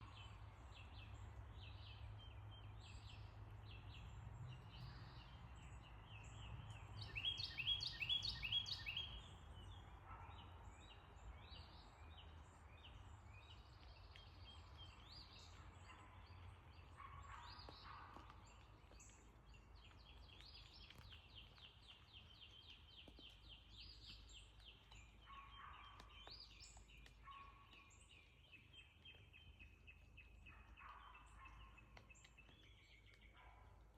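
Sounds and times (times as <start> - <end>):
birds chirping and trilling: 2.8 - 9.3.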